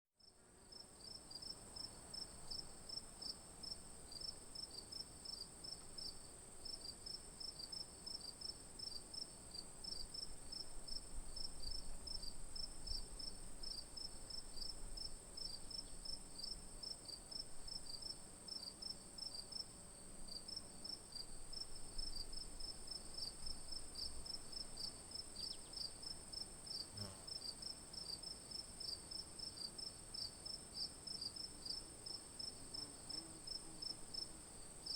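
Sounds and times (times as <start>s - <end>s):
crickets chirping: 20.3s - 34.9s.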